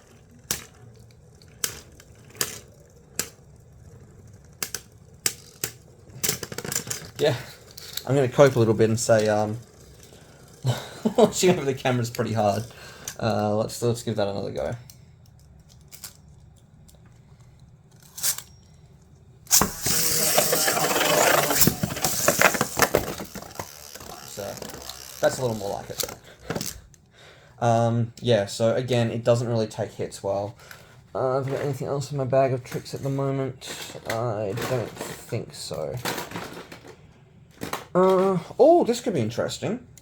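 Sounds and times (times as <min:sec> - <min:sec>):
plastic spinning tops clacking: 0:00.0 - 0:13.4, 0:19.5 - 0:27.0
spinning tops clashing clicks: 0:18.0 - 0:18.6, 0:19.5 - 0:26.8
spinning tops landing clack: 0:19.5 - 0:26.8.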